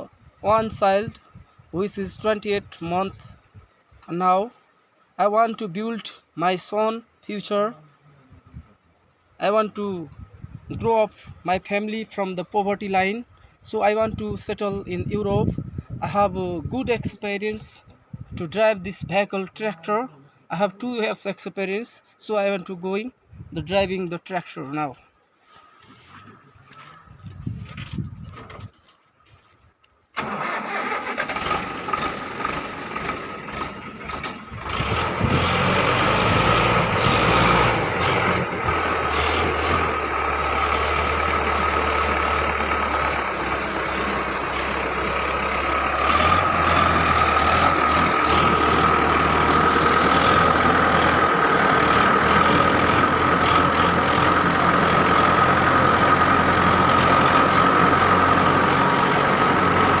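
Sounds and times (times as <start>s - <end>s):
tractor engine running: 30.2s - 60.0s.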